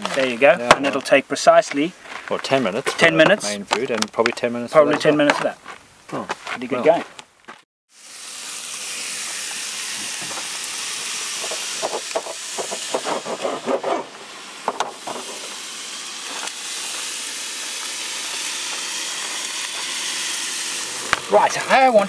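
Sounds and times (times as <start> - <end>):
bacon sizzling in a pan: 7.9 - 22.0.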